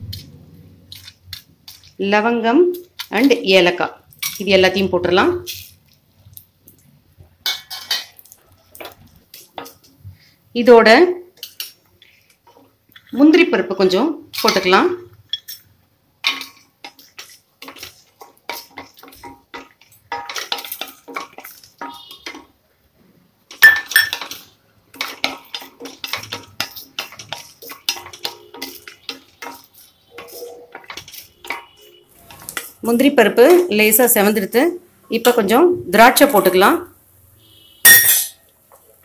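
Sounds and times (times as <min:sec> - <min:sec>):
wooden spatula scraping steel pot: 0:00.0 - 0:02.2, 0:14.3 - 0:22.6, 0:23.5 - 0:34.3.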